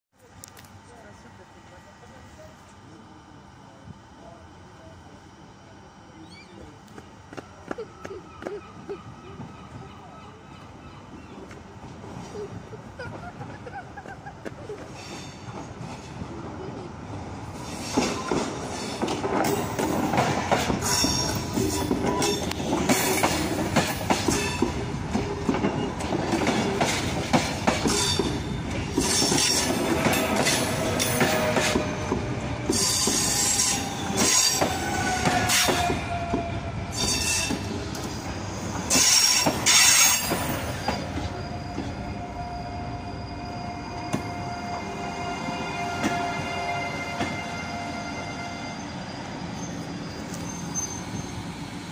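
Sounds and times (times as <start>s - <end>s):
train wheels clacking over joints: 17.8s - 38.2s, 38.9s - 42.0s
high squealing tones: 38.9s - 51.6s.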